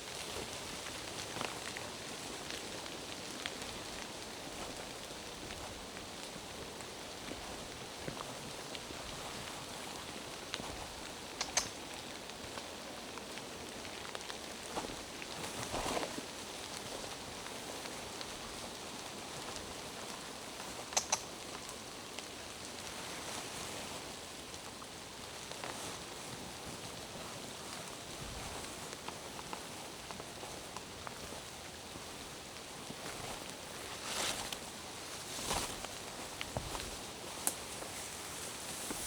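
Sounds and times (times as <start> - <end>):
rain falling through forest: 0.0 - 39.0
sharp ticks: 21.0 - 21.3.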